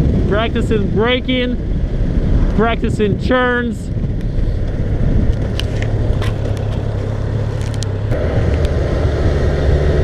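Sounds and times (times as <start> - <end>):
motorcycle engine running: 0.0 - 10.0
wind noise: 0.0 - 10.0.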